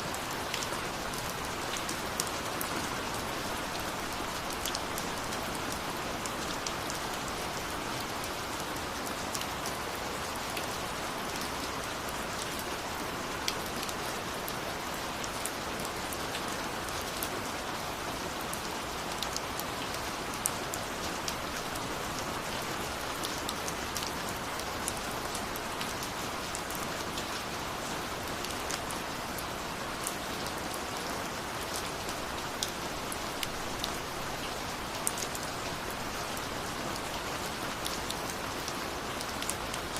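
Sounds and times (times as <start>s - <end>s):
steady rain falling: 0.0s - 39.9s
raindrops ticking on a surface: 0.1s - 39.9s.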